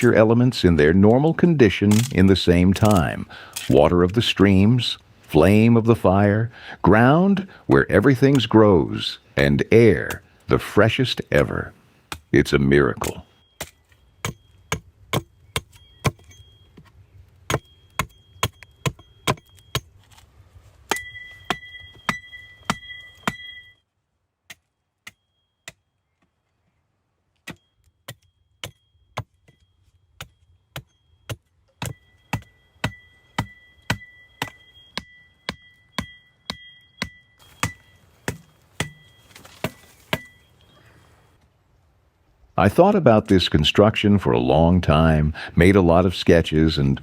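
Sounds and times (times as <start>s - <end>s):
faint high steady tone: 12.4s - 23.9s, 27.5s - 41.4s.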